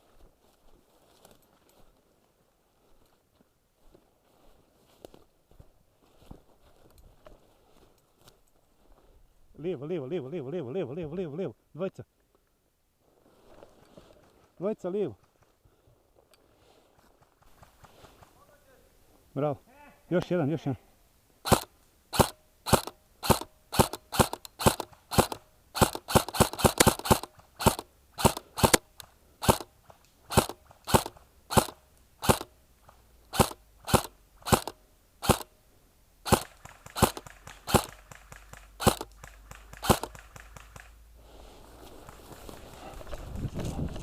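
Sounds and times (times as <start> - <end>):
airsoft rifle firing shots: 21.5 - 29.7, 30.3 - 32.6, 33.3 - 35.5, 36.3 - 41.0.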